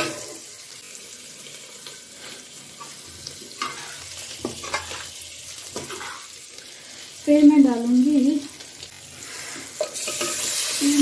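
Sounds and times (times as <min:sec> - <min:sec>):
metal cookware clank: 0:00.0 - 0:00.4, 0:09.8 - 0:10.6
gravy sizzling: 0:00.0 - 0:11.0.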